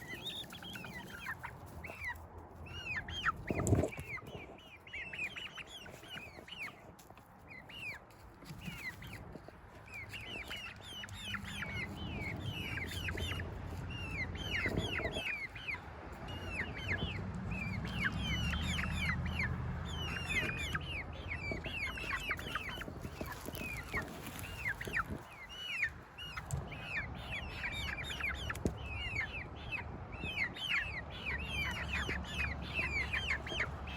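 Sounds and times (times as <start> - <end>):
chickens and turkeys chirping: 0.0 - 33.9.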